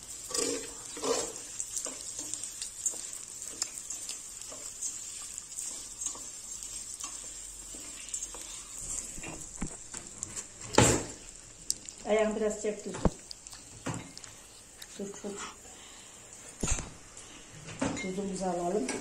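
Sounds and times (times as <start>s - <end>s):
grains sizzling in oil: 0.0s - 16.6s
wooden spoon scraping pot: 0.2s - 6.3s.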